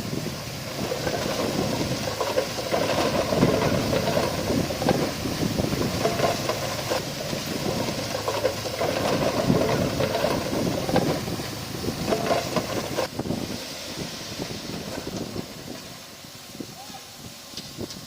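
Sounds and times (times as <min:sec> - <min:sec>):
heavy diesel engine running: 0:00.0 - 0:16.7
clanks and rattles: 0:00.7 - 0:13.1.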